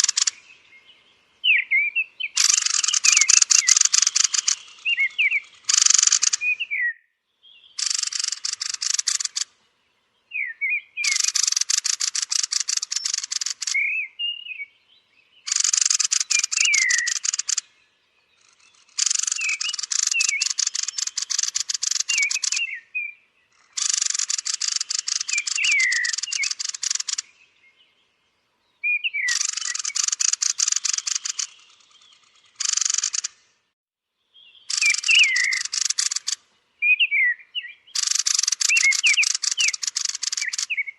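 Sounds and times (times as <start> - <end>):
thrushes chattering ticks: 0.0 - 0.5, 2.3 - 6.7, 7.8 - 9.5, 11.0 - 13.9, 15.5 - 17.7, 18.4 - 22.8, 23.5 - 27.3, 29.3 - 33.5, 34.7 - 36.4, 38.0 - 40.9
high falling whistled calls: 0.0 - 0.8, 1.4 - 7.0, 7.6 - 9.5, 10.3 - 14.7, 15.4 - 17.8, 18.4 - 27.8, 28.8 - 33.5, 34.4 - 40.9.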